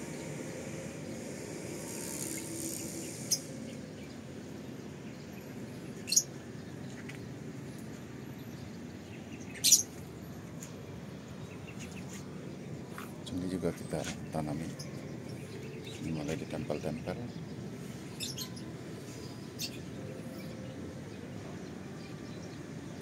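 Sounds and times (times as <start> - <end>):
bird chirps: 5.2 - 7.1, 8.5 - 10.0, 13.0 - 20.8.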